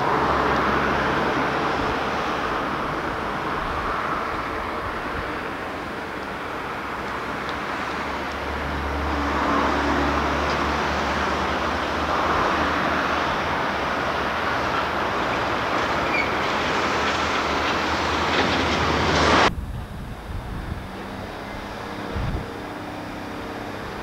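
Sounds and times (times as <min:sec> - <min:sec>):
freight train passing: 0:00.0 - 0:24.0
low drone: 0:17.0 - 0:24.0.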